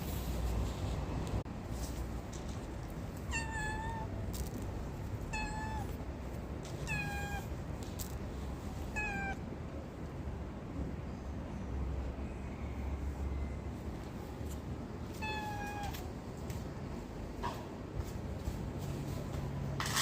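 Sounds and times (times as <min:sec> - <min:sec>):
kitten meowing: 0:03.2 - 0:04.2, 0:05.3 - 0:06.0, 0:06.8 - 0:07.5, 0:08.9 - 0:09.4, 0:15.2 - 0:16.1.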